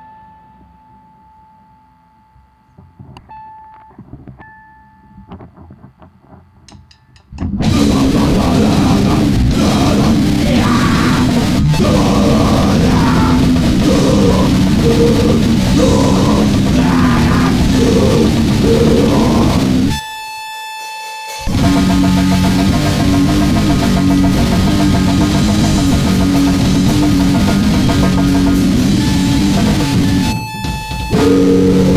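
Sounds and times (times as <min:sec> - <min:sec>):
distorted guitar and drums: 0:02.7 - 0:20.1, 0:21.3 - 0:31.9
steady whine: 0:07.4 - 0:20.1, 0:21.4 - 0:31.9.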